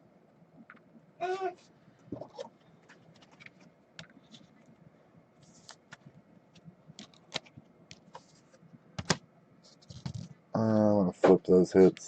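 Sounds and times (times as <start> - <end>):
trading cards clicking and rustling: 5.5 - 8.4.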